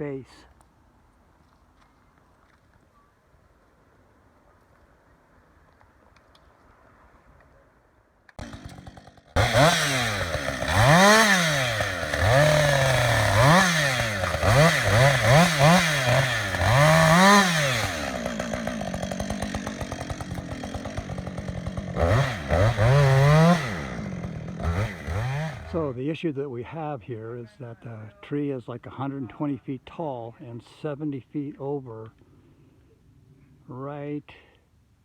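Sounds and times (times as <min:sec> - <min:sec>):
chainsaw revving: 0:08.4 - 0:26.0.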